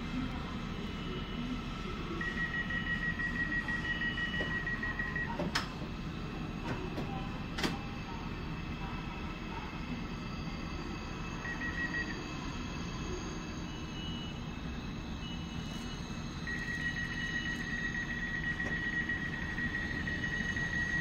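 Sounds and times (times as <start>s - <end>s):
high steady tone: 15.2s - 21.0s.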